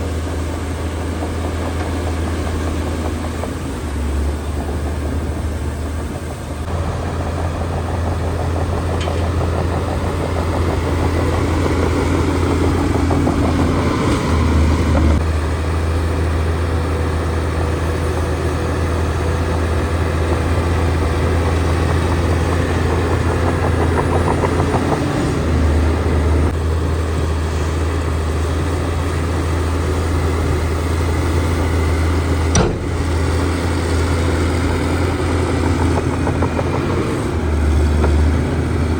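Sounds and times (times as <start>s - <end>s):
heavy diesel engine humming: 0.0s - 38.9s
sharp knock: 32.5s - 33.4s.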